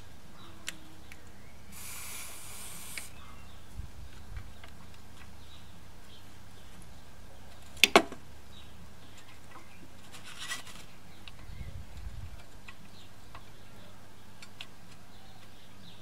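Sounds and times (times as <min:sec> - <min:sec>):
hiss-like rustle: 0:01.6 - 0:04.4.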